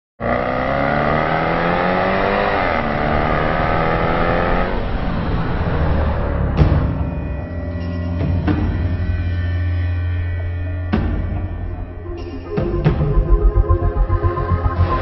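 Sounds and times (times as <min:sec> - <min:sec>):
car engine accelerating hard: 0:00.2 - 0:06.8.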